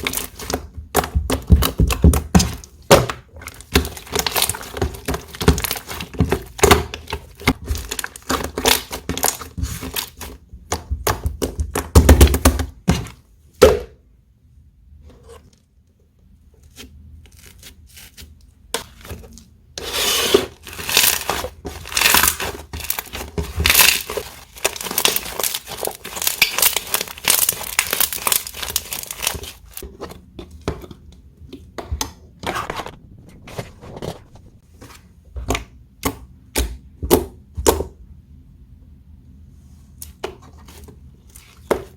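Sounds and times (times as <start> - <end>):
slime squished crackling: 20.6 - 29.8.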